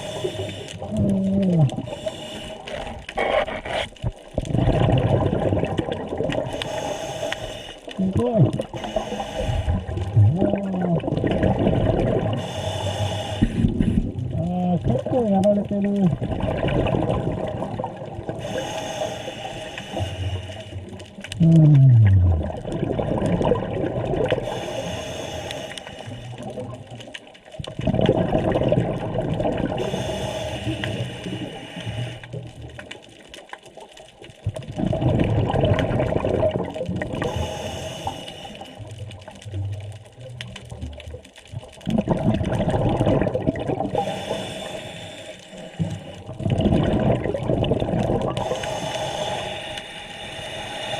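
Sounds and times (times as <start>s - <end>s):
diver exhaling bubbles: 0.0s - 6.9s, 8.0s - 15.2s, 16.0s - 27.0s, 27.7s - 32.5s, 34.5s - 41.0s, 41.6s - 49.5s
short falling moan: 21.4s - 22.5s.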